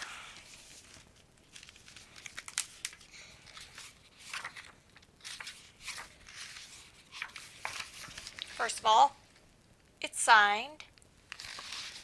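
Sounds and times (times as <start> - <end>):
book pages rustling: 0.0 - 8.9, 11.3 - 12.0.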